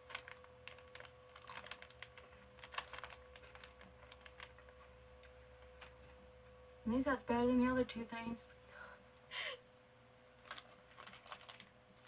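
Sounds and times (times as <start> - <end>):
wafer snack crunching: 0.0 - 6.1, 10.4 - 12.0
faint steady hum: 0.0 - 12.0.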